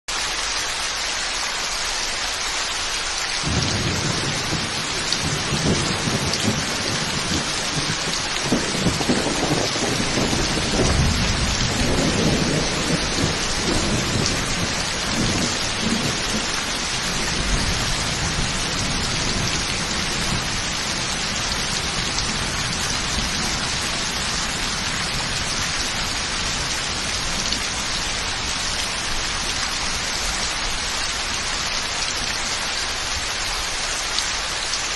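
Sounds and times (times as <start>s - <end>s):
heavy rain: 0.1s - 34.9s
thunder rolling: 3.4s - 27.5s.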